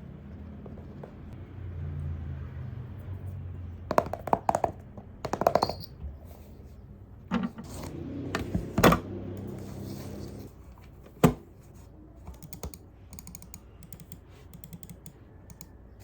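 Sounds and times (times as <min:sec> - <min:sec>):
objects knocking on hard surface: 0:03.9 - 0:05.9.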